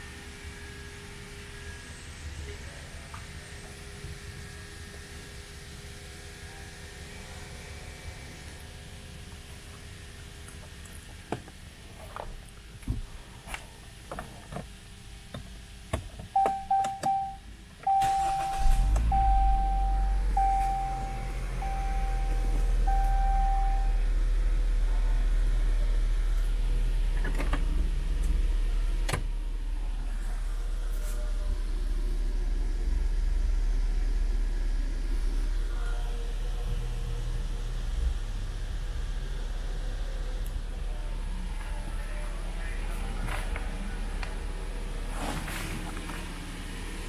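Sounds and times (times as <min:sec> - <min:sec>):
car engine cranking and idling: 0:00.0 - 0:47.0
dashboard warning chime beeps: 0:16.4 - 0:24.0.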